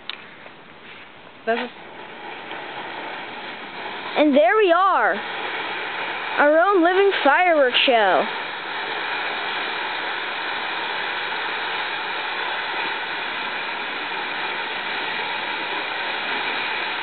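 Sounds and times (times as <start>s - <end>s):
ground firework hissing: 0.0s - 17.0s.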